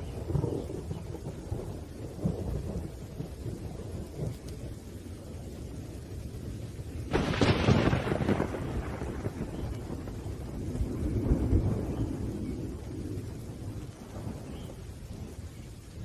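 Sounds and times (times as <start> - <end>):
low rolling thunder: 0.0 - 16.0
steady rain: 0.0 - 16.0
thunder crack: 7.1 - 14.7.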